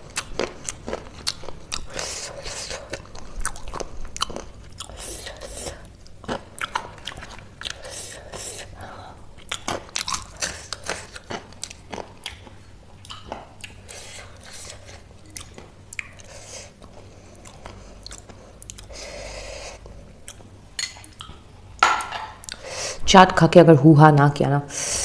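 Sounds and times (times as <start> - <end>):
chewing crunchy chips: 0.0 - 19.0.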